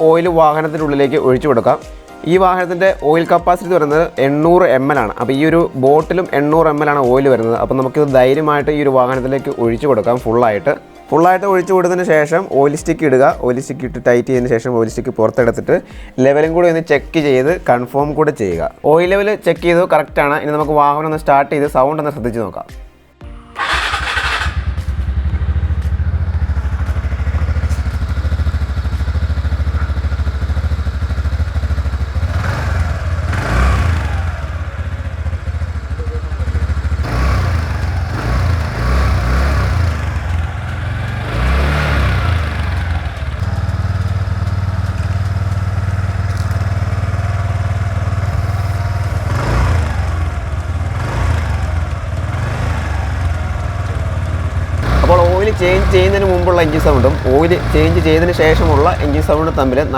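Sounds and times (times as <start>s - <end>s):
scooter engine idling: 0.0s - 13.0s, 23.2s - 59.9s
scooter engine starting: 23.2s - 59.9s
engine revving: 23.6s - 59.9s.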